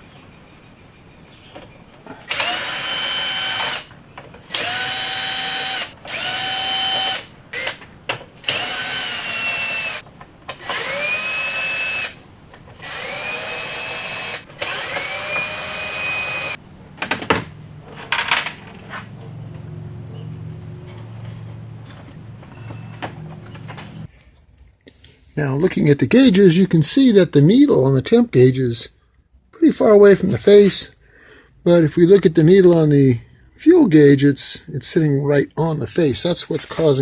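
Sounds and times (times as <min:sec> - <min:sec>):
cordless drill whining: 0:02.3 - 0:03.9, 0:04.5 - 0:07.8, 0:08.4 - 0:10.0, 0:10.6 - 0:12.2, 0:12.8 - 0:16.6.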